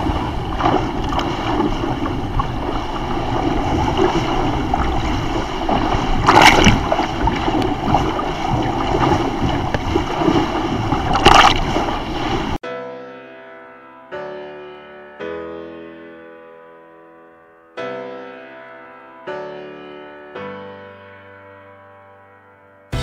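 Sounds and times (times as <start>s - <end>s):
breaking wave splash: 0.0s - 12.6s
water rushing along hull: 0.0s - 12.6s.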